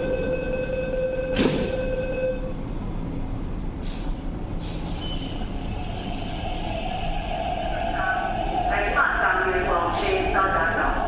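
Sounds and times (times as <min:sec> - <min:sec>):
low train rumble: 0:00.0 - 0:11.0
air brakes hissing: 0:03.8 - 0:06.3.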